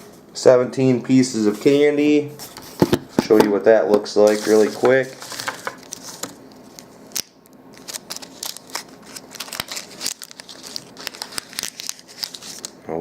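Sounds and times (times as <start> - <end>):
plastic candy wrappers crinkling: 4.2 - 12.8.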